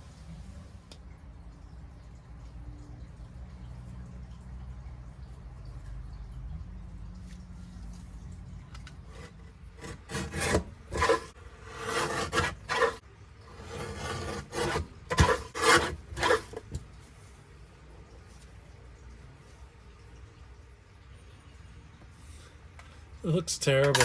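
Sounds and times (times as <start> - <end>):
rubbing scraping strokes: 9.1 - 16.8.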